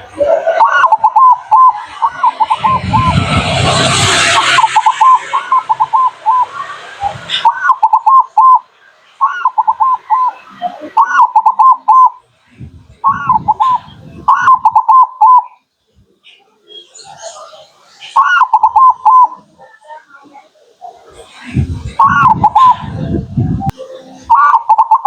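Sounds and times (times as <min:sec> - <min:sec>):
rushing noise: 0:00.0 - 0:15.0, 0:21.1 - 0:25.0
dove cooing: 0:00.0 - 0:15.6, 0:18.2 - 0:19.5, 0:20.9 - 0:25.0.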